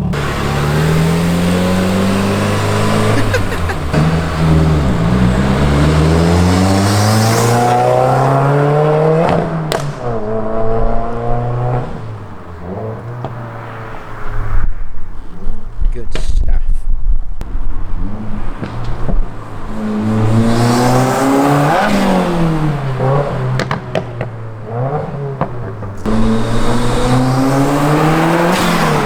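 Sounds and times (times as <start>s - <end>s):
car engine accelerating hard: 0.0s - 14.6s, 17.4s - 29.0s
exhaust crack: 0.0s - 29.0s.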